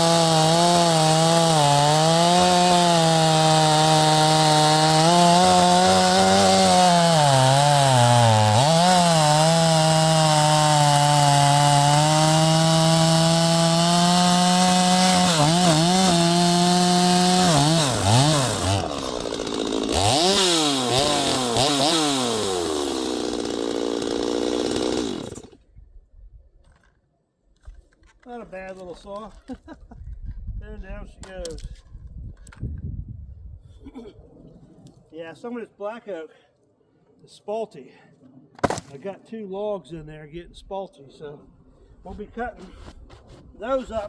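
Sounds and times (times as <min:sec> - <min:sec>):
chainsaw cutting wood: 0:00.0 - 0:25.6.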